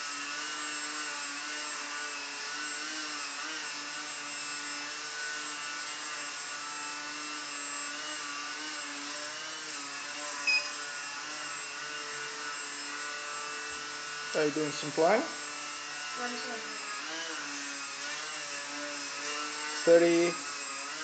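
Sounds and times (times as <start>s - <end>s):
model airplane motor whine: 0.0s - 21.0s
loud high beep: 10.4s - 10.8s.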